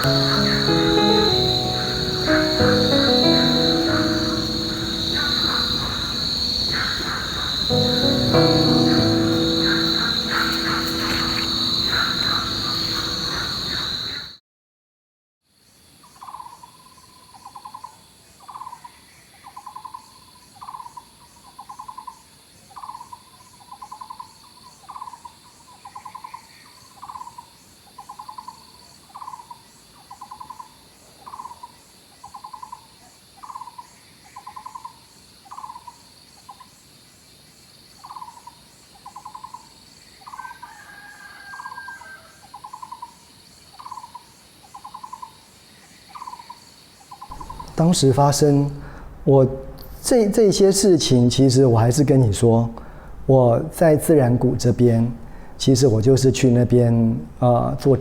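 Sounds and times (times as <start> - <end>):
animal trilled call: 0.0 - 14.3, 47.3 - 48.2
higher animal call: 0.0 - 14.3
insects buzzing: 0.0 - 14.3, 41.1 - 49.2.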